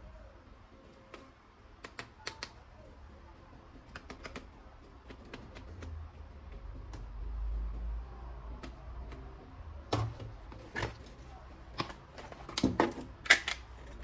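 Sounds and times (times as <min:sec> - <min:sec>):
plastic toy clicks and taps: 0:01.1 - 0:02.6, 0:03.7 - 0:07.1.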